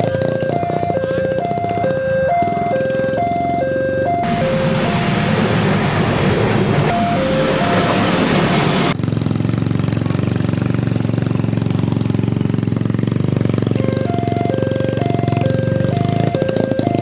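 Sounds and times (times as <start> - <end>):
level crossing warning bell: 0.0 - 9.0, 13.8 - 17.0
low pulsing engine buzz: 0.0 - 17.0
loud rushing noise: 4.2 - 9.0.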